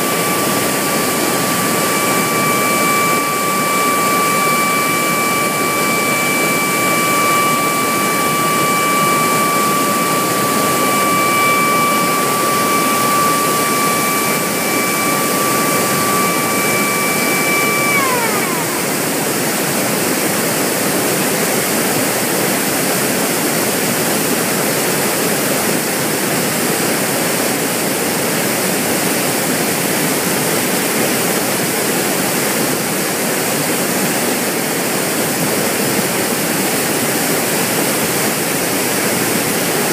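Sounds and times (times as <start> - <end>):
steady high tone: 0.0 - 20.2, 36.8 - 39.9.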